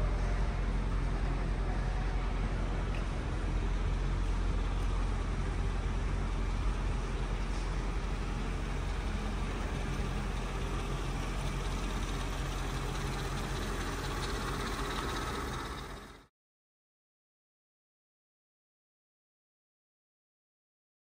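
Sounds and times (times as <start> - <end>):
car engine idling: 0.0 - 16.3.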